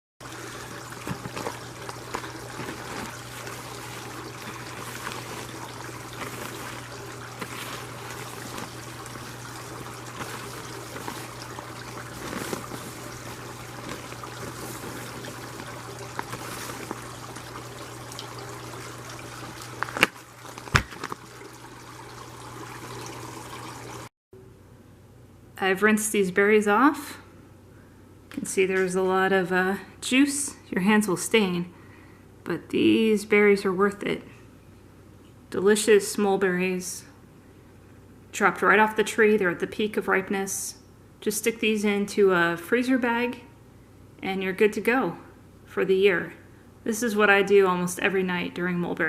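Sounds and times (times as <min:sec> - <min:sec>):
tap water pouring: 0:00.2 - 0:24.1.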